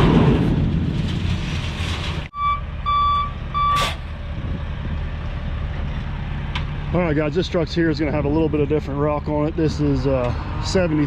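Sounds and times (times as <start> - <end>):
heavy engine running: 0.0 - 11.0
backup alarm beeping: 2.3 - 4.0.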